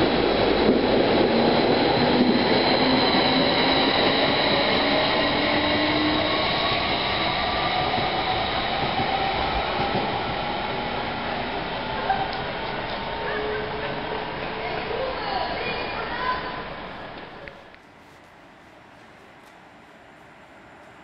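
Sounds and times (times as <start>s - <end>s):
train wheels rolling: 16.9s - 21.0s.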